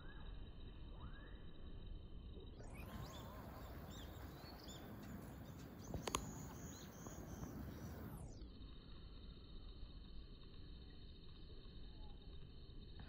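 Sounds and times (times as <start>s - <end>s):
bird chirps: 0.0s - 1.7s, 2.4s - 8.4s
faint outdoor rumble: 0.0s - 13.0s
sharp click: 5.6s - 6.8s.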